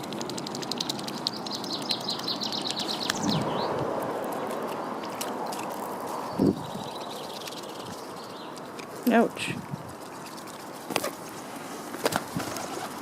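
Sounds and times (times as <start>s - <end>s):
outdoor background hiss: 0.0s - 13.0s
small bird chirping: 0.7s - 3.8s, 6.2s - 8.8s.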